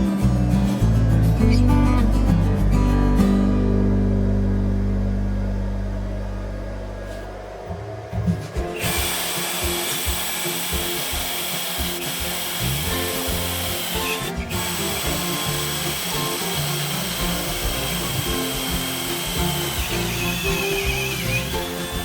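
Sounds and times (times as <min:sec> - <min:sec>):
background music: 0:00.0 - 0:22.0
power tool whirring: 0:08.7 - 0:22.0.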